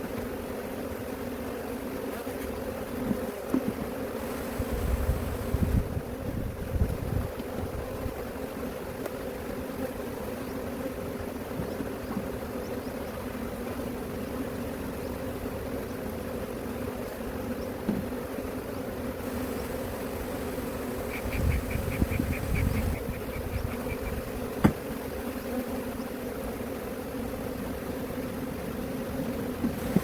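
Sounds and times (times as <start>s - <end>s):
bees buzzing: 0.0s - 30.0s
dull knocks: 24.6s - 24.9s.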